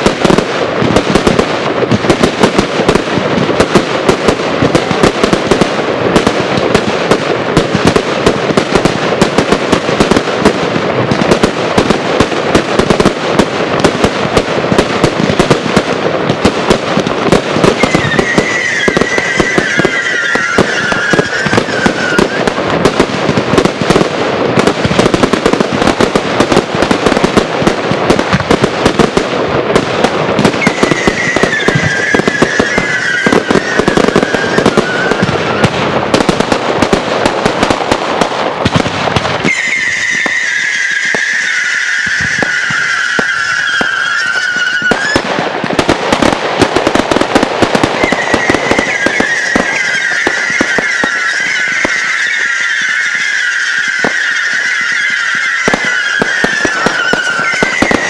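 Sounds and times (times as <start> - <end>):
fireworks bangs and crackling: 0.0 - 58.0
wavering falling high tone: 17.9 - 22.4, 48.2 - 58.0.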